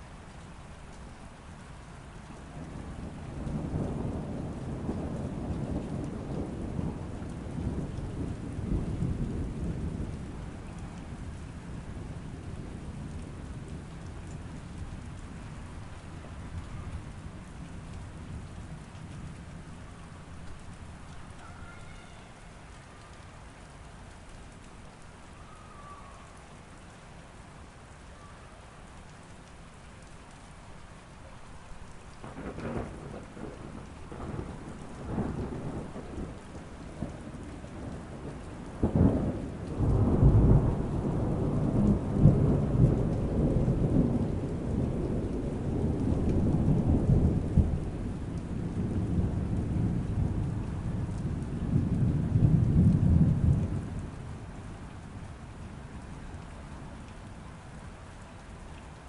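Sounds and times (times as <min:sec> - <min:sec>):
steady rain: 0:00.0 - 0:59.0
rolling thunder: 0:02.6 - 0:19.8, 0:32.2 - 0:54.7.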